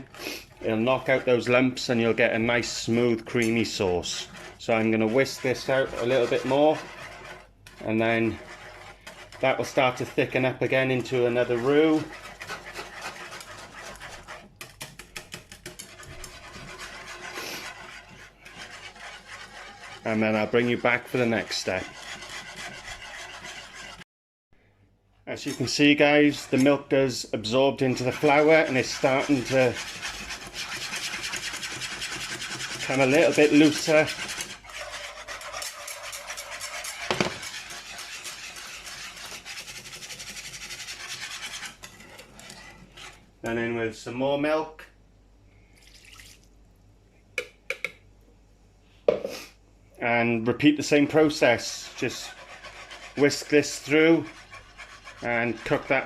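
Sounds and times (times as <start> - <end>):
whisk scraping around a pan: 0.0 - 24.0, 25.2 - 44.5, 50.1 - 56.0.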